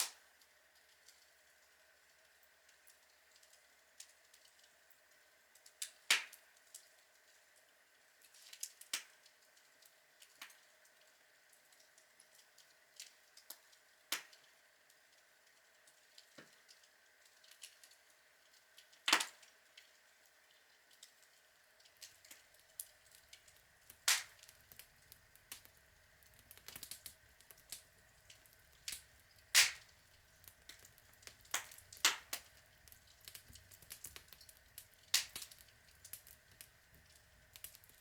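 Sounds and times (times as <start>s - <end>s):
faint steady hiss: 0.0s - 38.0s
log fire crackling and popping: 5.6s - 6.9s, 12.2s - 14.6s, 15.5s - 38.0s.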